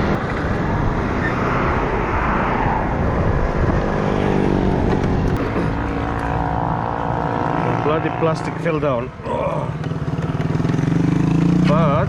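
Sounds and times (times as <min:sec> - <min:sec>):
wind and road noise: 0:00.0 - 0:12.0
motorcycle engine running: 0:04.8 - 0:12.0.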